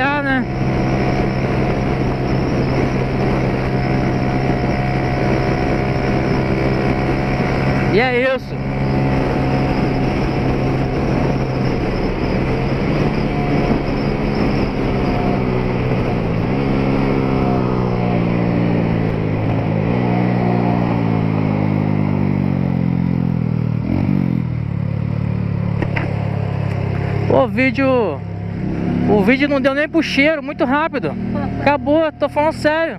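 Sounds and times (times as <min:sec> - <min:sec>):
motorcycle engine running: 0:00.0 - 0:32.9
wind and road noise: 0:00.0 - 0:32.9.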